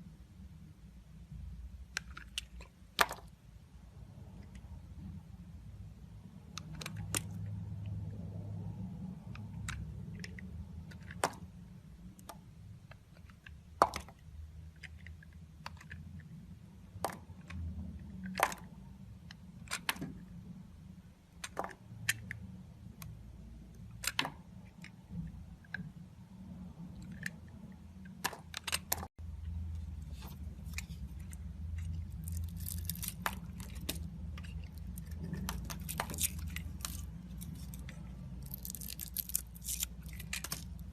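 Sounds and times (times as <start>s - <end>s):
knife carving soap: 1.9s - 3.3s, 28.0s - 40.9s.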